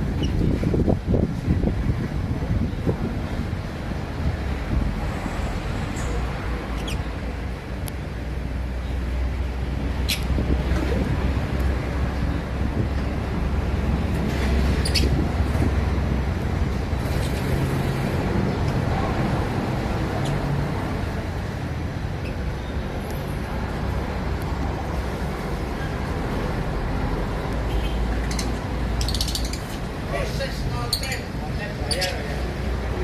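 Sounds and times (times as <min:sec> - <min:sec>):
lovebirds chirping: 0:06.7 - 0:07.1, 0:27.7 - 0:32.6.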